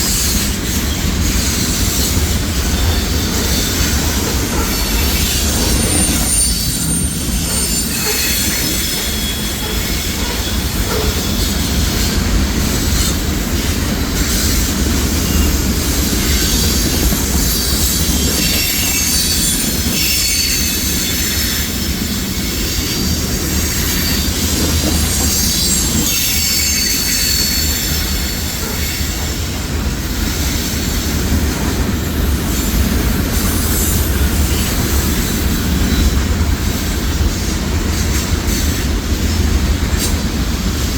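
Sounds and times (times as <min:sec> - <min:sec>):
wheel squeal: 0:00.0 - 0:12.2, 0:13.0 - 0:29.4
train wheels rumbling on rail: 0:00.0 - 0:40.9.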